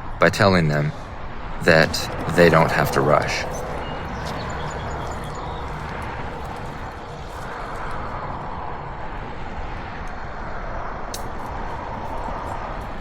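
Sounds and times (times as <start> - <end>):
machinery engine drone: 1.6 - 8.2.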